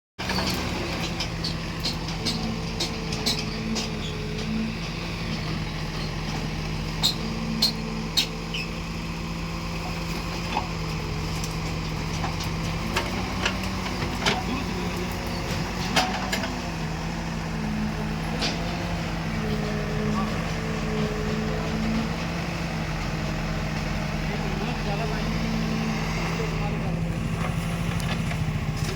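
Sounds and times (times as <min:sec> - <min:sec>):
diesel engine running: 0:00.2 - 0:28.9
sharp knocks and clanks: 0:15.2 - 0:16.7.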